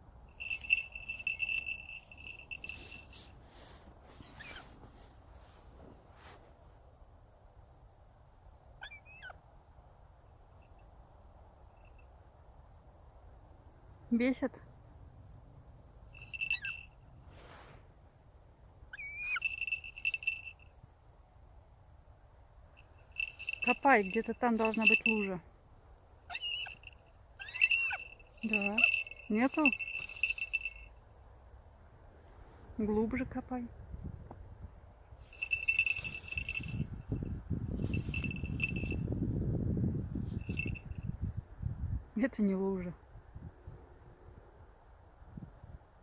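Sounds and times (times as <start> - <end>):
small bell jingling: 0.3 - 3.4, 11.6 - 12.2, 16.1 - 17.0, 19.2 - 20.7, 22.8 - 25.4, 26.3 - 31.0, 35.2 - 39.2, 40.2 - 41.1
scuffing and crunching of snow: 2.2 - 6.6
short squeak: 4.2 - 4.8, 26.3 - 28.2.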